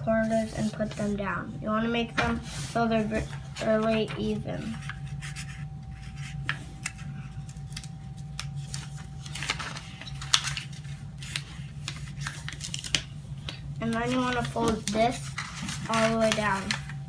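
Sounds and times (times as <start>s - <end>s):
paper crinkling and folding: 0.0s - 1.3s, 2.2s - 17.0s
low hum: 0.0s - 17.0s.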